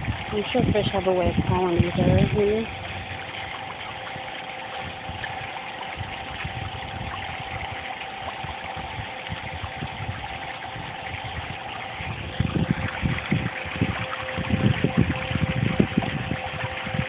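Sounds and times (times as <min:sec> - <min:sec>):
faint steady hum: 0:00.0 - 0:17.0
fountain water splashing into pond: 0:00.0 - 0:17.0.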